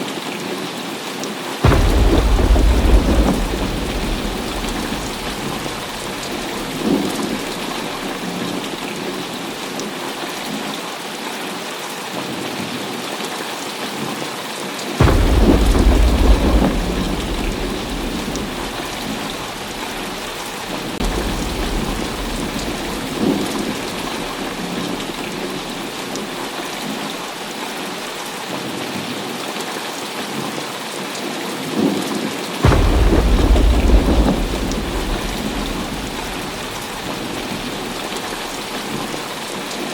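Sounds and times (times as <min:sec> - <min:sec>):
heavy rain falling: 0:00.0 - 0:39.9
thunder rumbling: 0:01.6 - 0:09.7, 0:15.0 - 0:27.4, 0:32.6 - 0:39.9.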